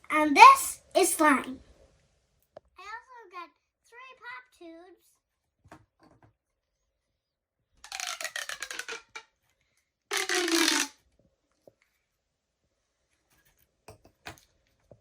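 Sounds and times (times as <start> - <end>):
pop tube ratcheting crackle: 7.8 - 9.2, 10.1 - 10.9.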